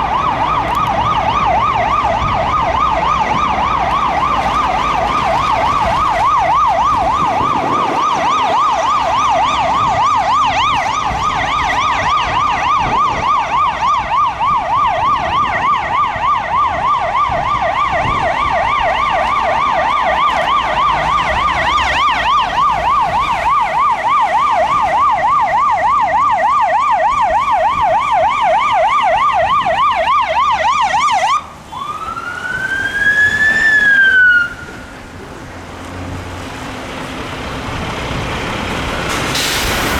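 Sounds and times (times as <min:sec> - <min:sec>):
siren wail: 0:00.0 - 0:35.2
fire engine siren yelping: 0:00.0 - 0:39.9.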